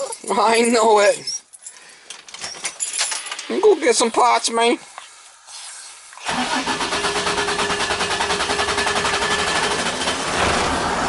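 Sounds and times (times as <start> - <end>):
engine cranking and idling: 6.2 - 11.0.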